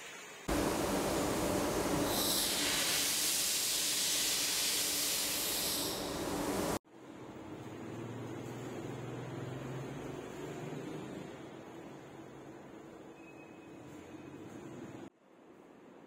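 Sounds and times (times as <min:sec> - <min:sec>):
steady loud hiss: 0:00.0 - 0:06.8.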